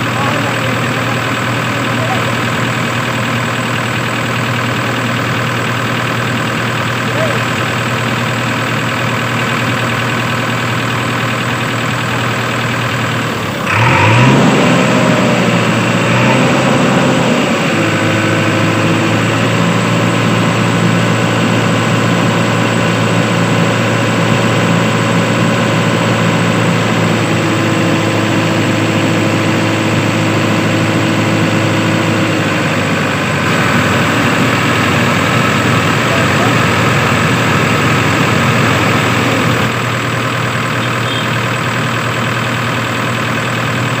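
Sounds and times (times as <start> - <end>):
tractor engine running: 0.0 - 44.0.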